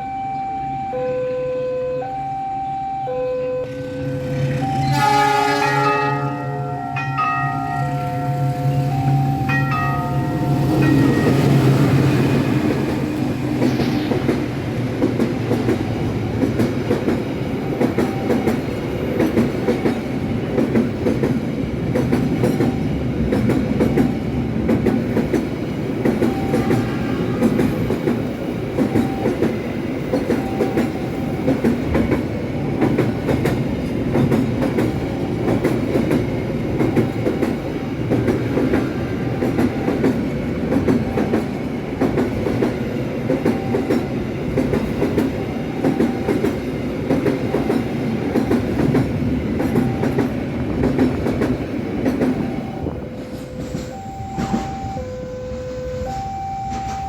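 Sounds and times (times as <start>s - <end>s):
freight train wheels clacking: 6.2s - 55.0s, 56.0s - 57.0s.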